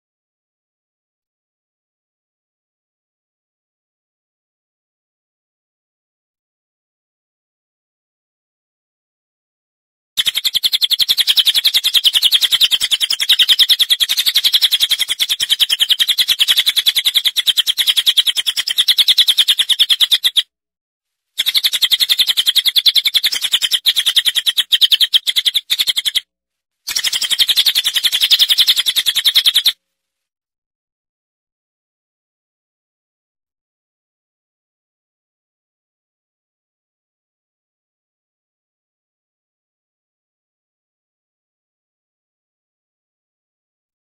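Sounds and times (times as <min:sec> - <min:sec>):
high bird chirps: 0:10.2 - 0:20.4, 0:21.4 - 0:26.2, 0:26.9 - 0:29.8.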